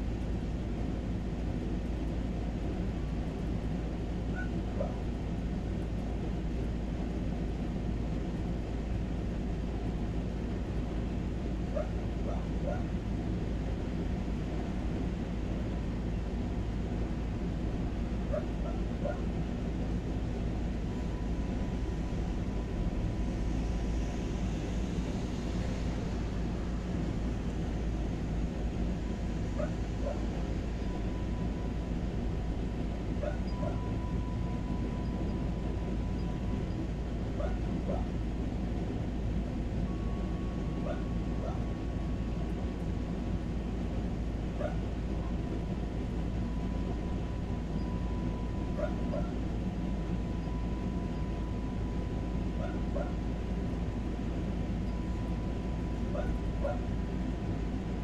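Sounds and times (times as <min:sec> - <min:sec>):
low rushing background: 0:00.0 - 0:58.0
distant dog barking: 0:11.7 - 0:12.9, 0:18.3 - 0:19.2, 0:29.6 - 0:30.2, 0:33.2 - 0:33.8, 0:37.4 - 0:38.2, 0:40.8 - 0:41.6, 0:44.6 - 0:44.8, 0:48.8 - 0:49.4, 0:52.6 - 0:53.2, 0:56.1 - 0:56.9.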